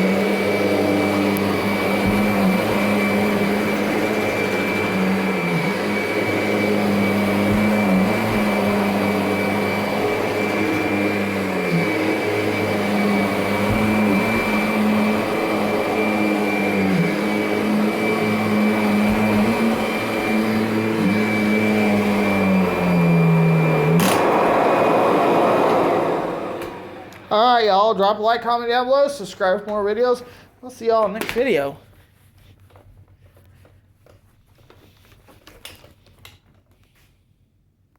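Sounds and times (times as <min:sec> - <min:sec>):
vacuum cleaner motor hum: 0:00.0 - 0:27.9.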